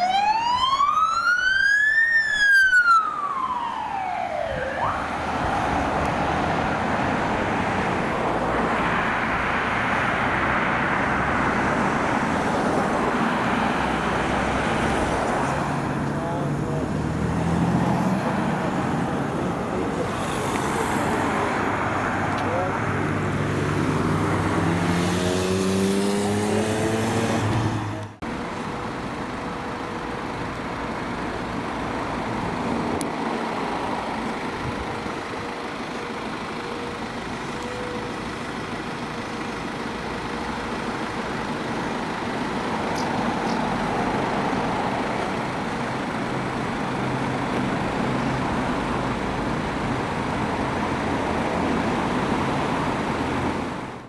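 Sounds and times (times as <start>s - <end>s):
road traffic noise: 0.0s - 54.0s
vehicle engine accelerating: 5.1s - 54.0s.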